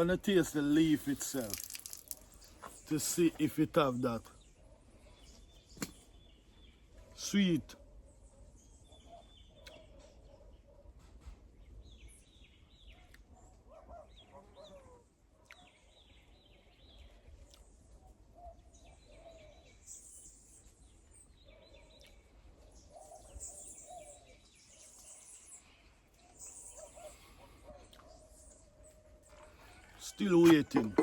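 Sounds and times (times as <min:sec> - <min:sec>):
small birds chirping: 0:00.0 - 0:31.0
faint bird calls: 0:21.4 - 0:31.0.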